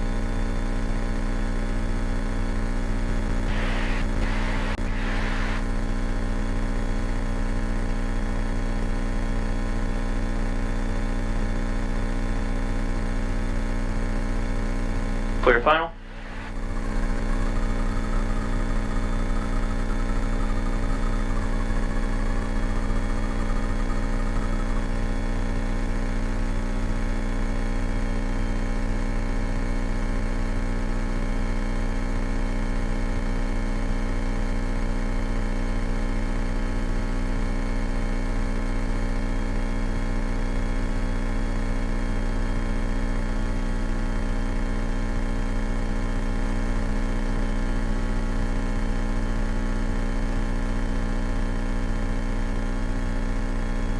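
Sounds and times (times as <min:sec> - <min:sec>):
airplane engine drone from cabin: 0:03.3 - 0:05.6.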